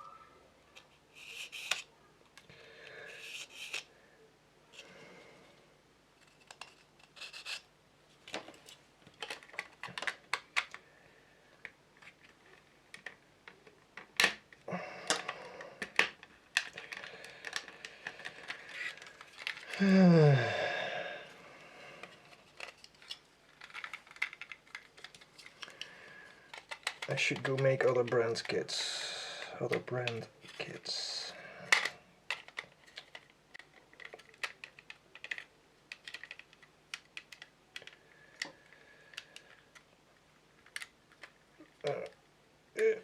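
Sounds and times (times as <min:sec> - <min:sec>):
plastic parts clicking: 0:00.8 - 0:02.5, 0:03.1 - 0:03.9, 0:06.2 - 0:07.6, 0:08.3 - 0:10.8, 0:11.6 - 0:19.8, 0:22.0 - 0:25.9, 0:26.5 - 0:28.6, 0:31.6 - 0:39.9, 0:40.6 - 0:42.2
person groaning: 0:19.7 - 0:21.3.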